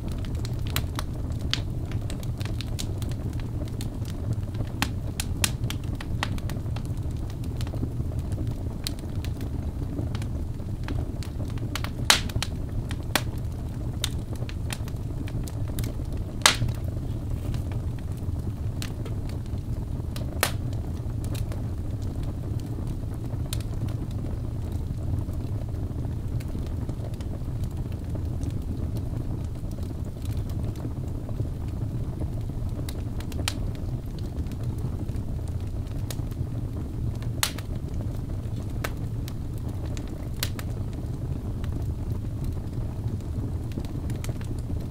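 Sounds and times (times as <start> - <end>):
fire crackles and pops: 0.0 - 44.9
fire flames rumbling: 0.0 - 44.9.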